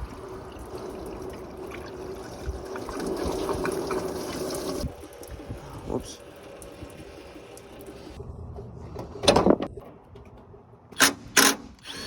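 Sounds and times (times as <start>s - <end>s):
liquid pouring: 0.0s - 8.2s.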